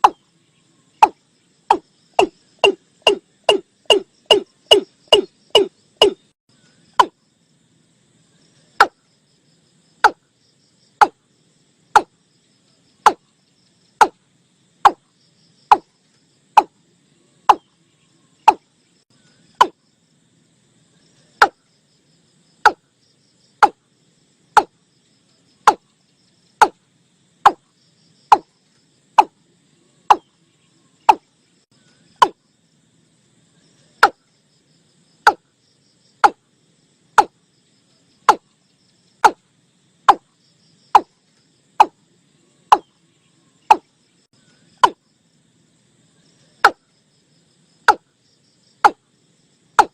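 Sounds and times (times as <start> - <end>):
watercock calling: 1.0 - 6.2.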